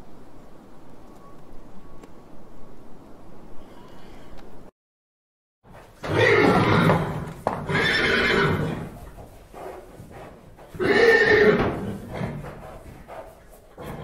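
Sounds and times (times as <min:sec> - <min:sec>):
horses whinnying: 0:06.0 - 0:09.1, 0:10.6 - 0:12.8, 0:13.7 - 0:14.0.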